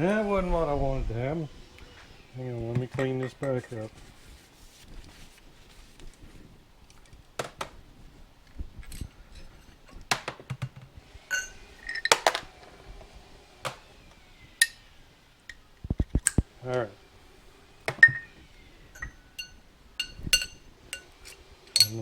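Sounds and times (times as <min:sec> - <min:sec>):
metal parts clinking on workbench: 0:11.3 - 0:12.5, 0:17.9 - 0:18.3, 0:19.0 - 0:22.0.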